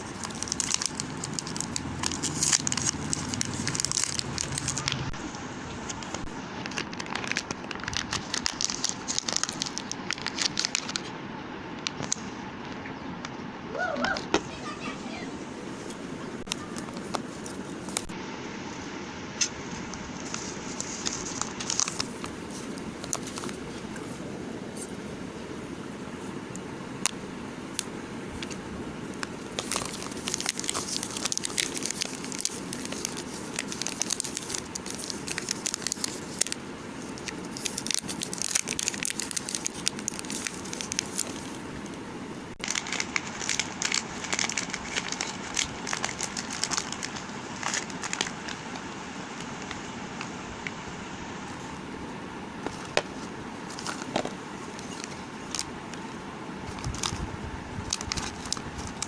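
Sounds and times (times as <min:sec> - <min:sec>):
soap crackling and crumbling: 0:00.0 - 0:05.2, 0:29.2 - 0:41.6.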